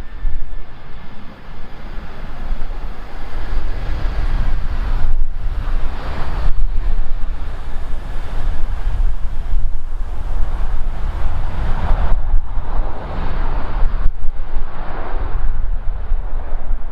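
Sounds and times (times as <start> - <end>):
jet airliner engines rushing: 0.0 - 16.9
wind buffeting microphone: 0.0 - 16.9.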